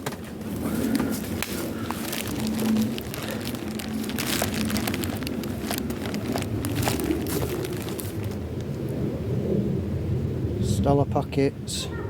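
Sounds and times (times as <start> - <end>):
dry leaves and twigs crackling: 0.0 - 9.0
low rumble: 0.4 - 11.7.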